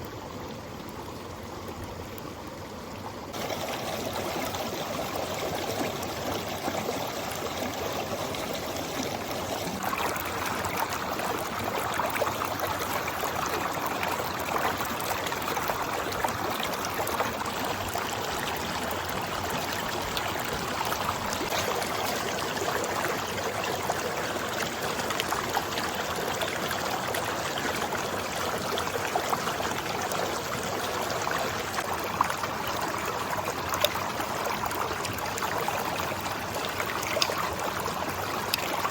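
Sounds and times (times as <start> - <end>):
stream rushing: 3.4 - 26.0.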